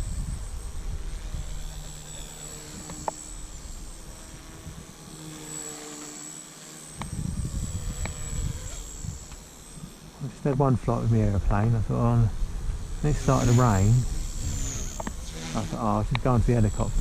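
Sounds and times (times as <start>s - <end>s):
rc helicopter rotor whine: 0.0s - 17.0s
low rumbling noise: 10.2s - 14.6s.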